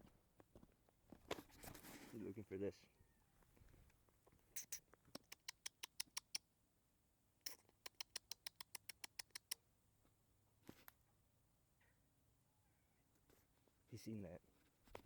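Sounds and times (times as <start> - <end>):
soft rustle: 0.0 - 2.5, 13.2 - 15.0
squirrel chattering: 4.6 - 6.4, 7.5 - 9.6.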